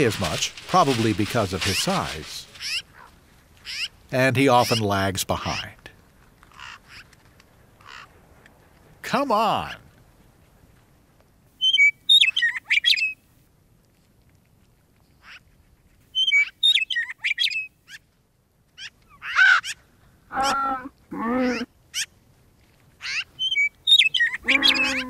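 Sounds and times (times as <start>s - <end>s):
birds chirping: 0.0s - 7.1s, 9.0s - 9.8s, 11.6s - 13.2s, 16.1s - 18.0s, 23.0s - 25.0s
bird calls bending in pitch: 23.0s - 25.0s.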